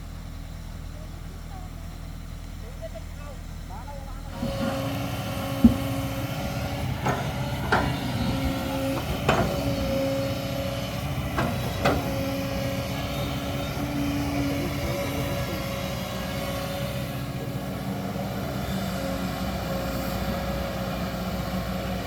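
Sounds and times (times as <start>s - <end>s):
excavator engine and hydraulic hum: 0.0s - 22.0s
sharp metallic knocks and clanks: 5.5s - 6.1s, 7.0s - 8.3s, 9.0s - 9.9s.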